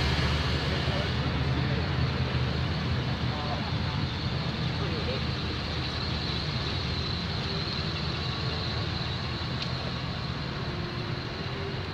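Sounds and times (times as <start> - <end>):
car engines low rumble: 0.0 - 11.9.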